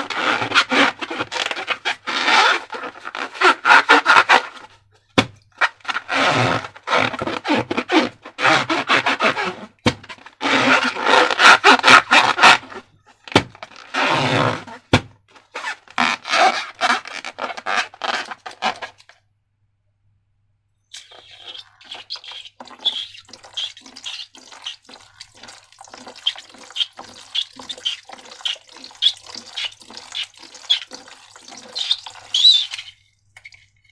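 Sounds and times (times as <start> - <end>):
slime squelching: 21.0 - 33.0.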